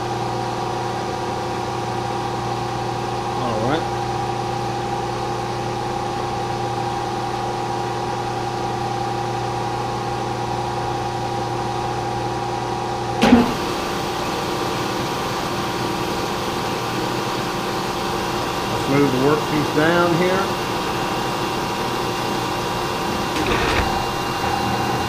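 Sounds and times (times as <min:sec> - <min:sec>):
milling machine humming: 0:12.6 - 0:25.0.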